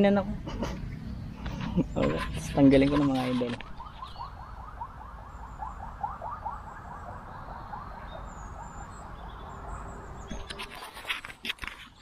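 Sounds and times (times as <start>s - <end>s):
bird rapid rising notes: 3.6s - 11.1s
faint high-pitched bird calls: 3.6s - 11.1s.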